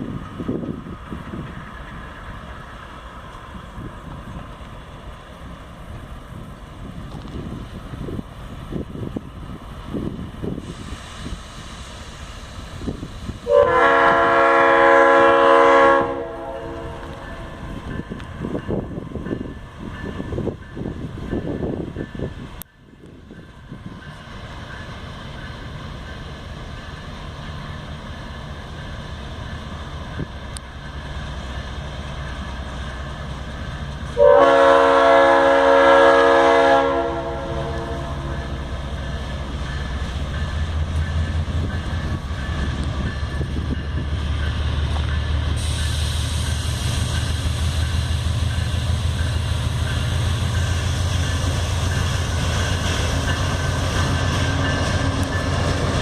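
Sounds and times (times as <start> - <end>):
train engine rumble: 0.0 - 56.0
wheels on rail: 0.0 - 56.0
train chord horn: 13.4 - 17.7, 34.1 - 39.1.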